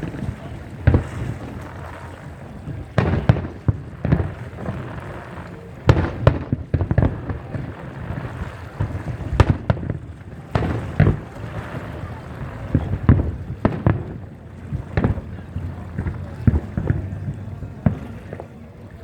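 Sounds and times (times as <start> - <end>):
fireworks bangs and booms: 0.0 - 18.8
fireworks crackling: 0.0 - 19.0.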